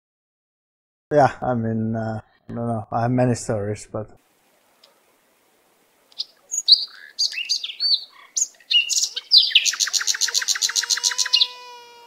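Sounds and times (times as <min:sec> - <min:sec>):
songbird chirps and trill: 0:06.0 - 0:12.0.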